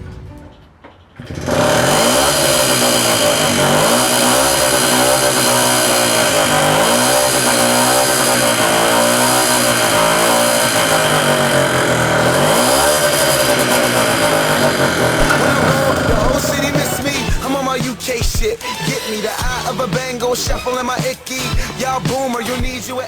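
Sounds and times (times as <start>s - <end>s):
moped engine revving: 0.0s - 23.0s.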